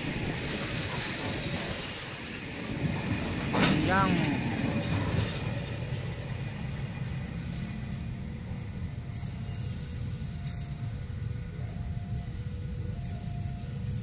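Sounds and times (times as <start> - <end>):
wheel squeal: 0.0 - 2.8
freight train wheel rumble: 0.0 - 14.0.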